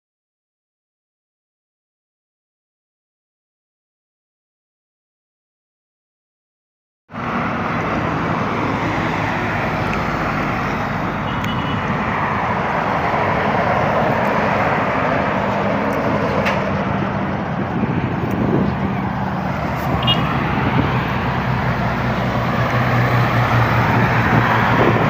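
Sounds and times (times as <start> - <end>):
tyres on road: 7.1 - 25.0
vehicle engines running: 7.1 - 25.0.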